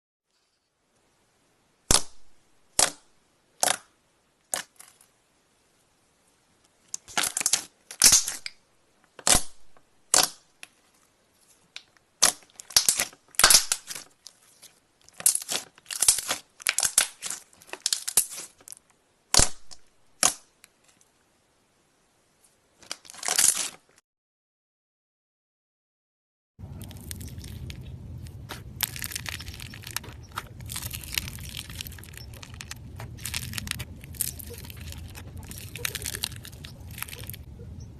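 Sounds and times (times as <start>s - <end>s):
slime popping and crackling: 7.0s - 8.6s, 9.2s - 10.4s, 12.2s - 14.4s, 15.0s - 20.4s, 22.8s - 23.8s, 26.6s - 37.5s.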